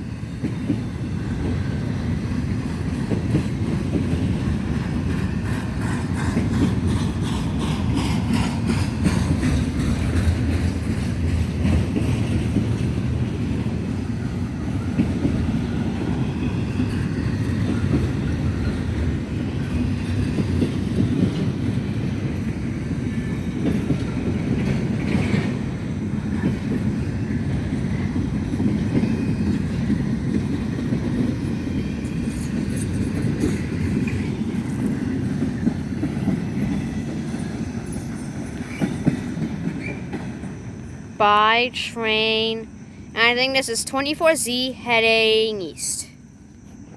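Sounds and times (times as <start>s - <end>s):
freight train rumbling past: 0.0s - 46.9s
wheels clicking over rail joints: 0.4s - 13.8s.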